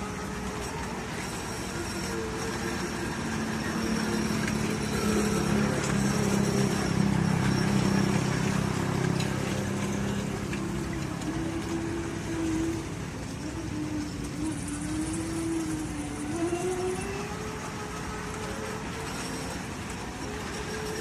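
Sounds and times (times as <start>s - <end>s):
ride train engine drone: 0.0s - 21.0s.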